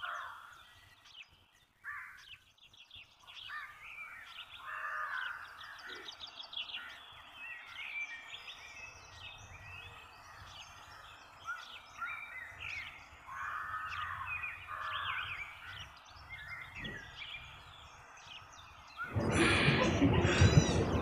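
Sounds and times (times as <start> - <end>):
birds chirping and calling: 0.0 - 21.0
harsh long bird calls: 3.4 - 7.3, 18.9 - 21.0.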